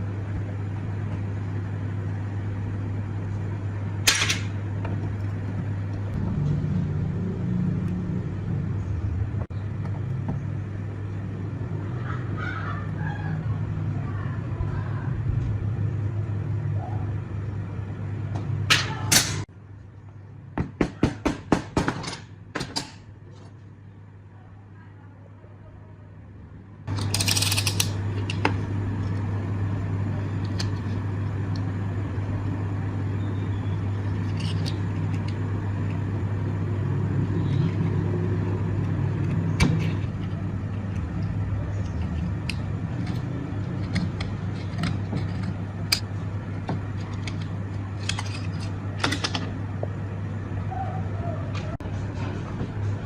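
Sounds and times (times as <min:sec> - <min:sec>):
machine humming: 0:26.8 - 0:53.0.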